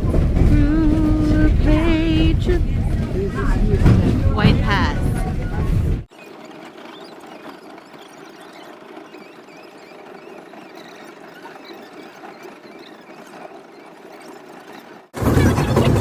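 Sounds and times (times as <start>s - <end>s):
train running noise: 0.0s - 16.0s
train wheels squealing: 5.2s - 16.0s.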